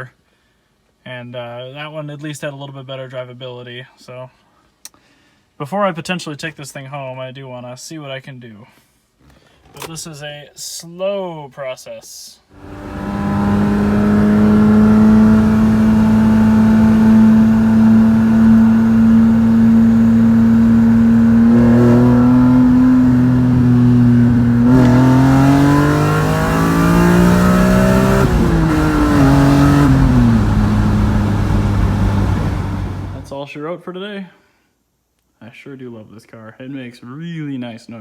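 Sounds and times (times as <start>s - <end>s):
car engine revving: 12.6s - 33.3s.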